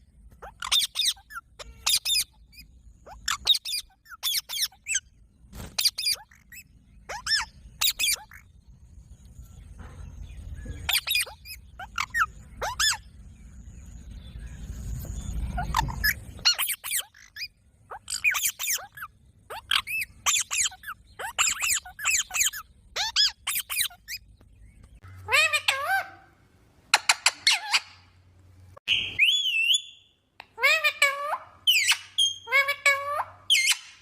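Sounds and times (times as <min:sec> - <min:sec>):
parrot screeching: 0:00.4 - 0:02.4, 0:10.9 - 0:13.0, 0:15.6 - 0:24.2, 0:25.3 - 0:26.3, 0:30.6 - 0:34.0
low rumble: 0:08.4 - 0:10.9, 0:11.6 - 0:16.5.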